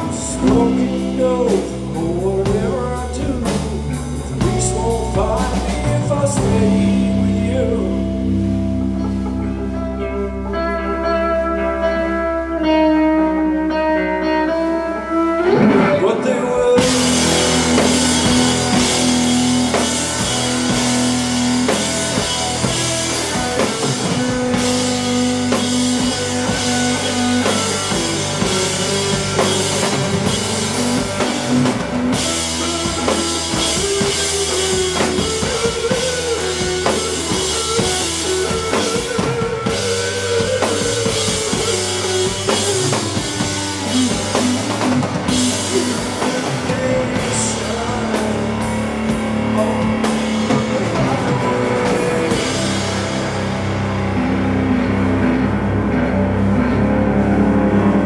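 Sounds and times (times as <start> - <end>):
drum kit beats: 0.0 - 11.2, 15.4 - 58.0
electric guitar: 0.0 - 58.0.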